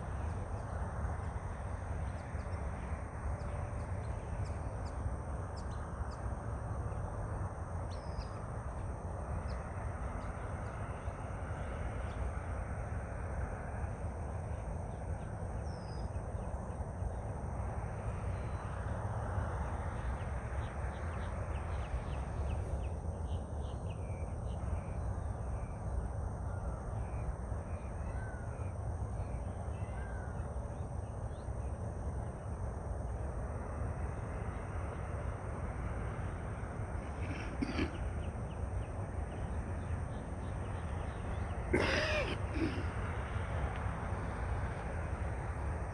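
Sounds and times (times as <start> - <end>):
birds calling: 37.0 - 42.9.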